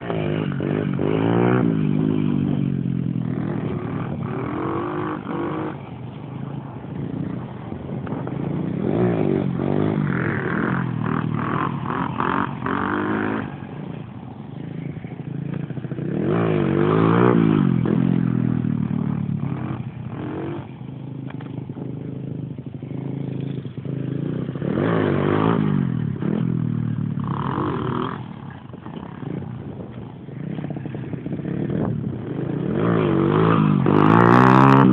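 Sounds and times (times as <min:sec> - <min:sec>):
dirt bike engine revving: 0:00.0 - 0:06.0, 0:06.6 - 0:34.9.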